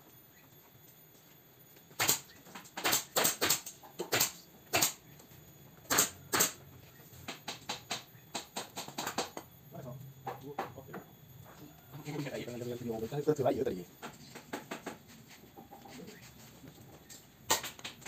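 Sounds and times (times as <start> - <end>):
pneumatic staple gun firing: 2.0 - 5.0, 5.9 - 6.6.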